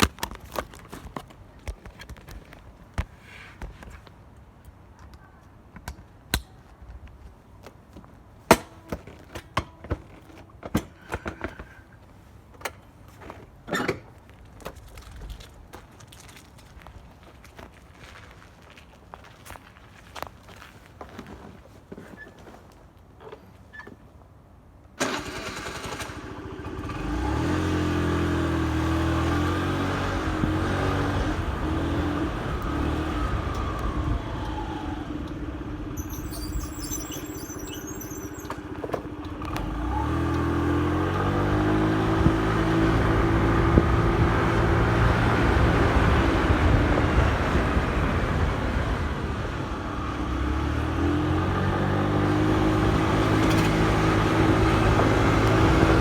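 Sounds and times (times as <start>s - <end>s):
street traffic noise: 0.0s - 56.0s
motorcycle engine pulling away: 25.0s - 56.0s.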